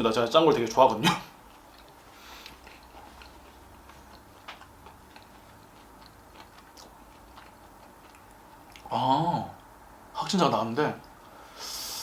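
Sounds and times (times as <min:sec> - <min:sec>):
low room hum: 0:00.0 - 0:12.0
person chewing: 0:00.5 - 0:09.0.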